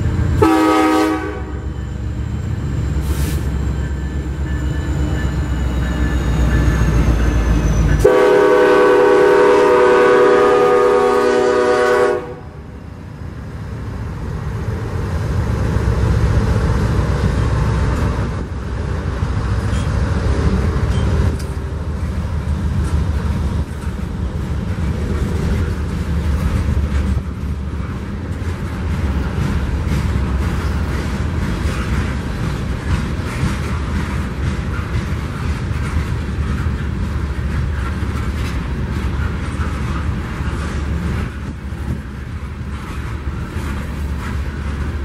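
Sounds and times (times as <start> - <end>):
freight train rumbling past: 0.0 - 45.0
train air horn chord: 0.4 - 1.7, 8.0 - 12.6.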